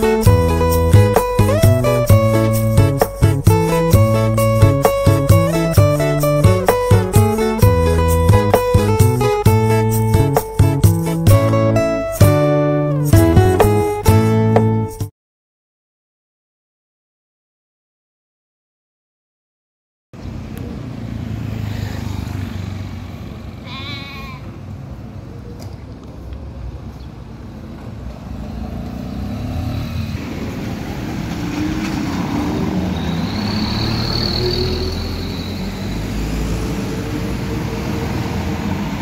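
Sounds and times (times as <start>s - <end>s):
traffic rumble of passing vehicles: 0.0s - 13.2s, 20.2s - 39.0s
wavering bleat-like call: 23.6s - 24.6s
high thin squeal: 32.8s - 36.2s.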